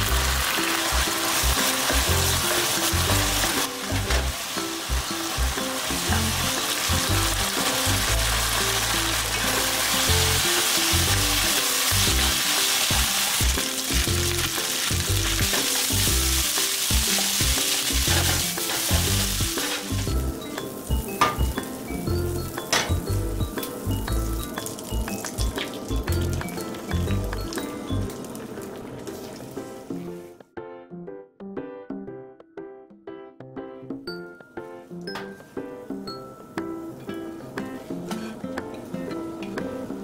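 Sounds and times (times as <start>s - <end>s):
food sizzling in a wok: 0.0s - 29.9s.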